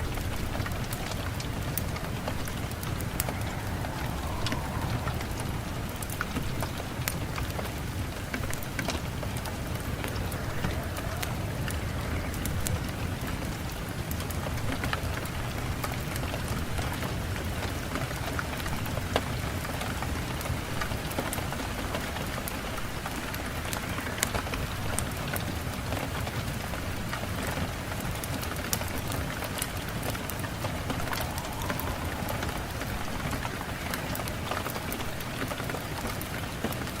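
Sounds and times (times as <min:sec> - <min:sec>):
rain falling on a surface: 0:00.0 - 0:37.0.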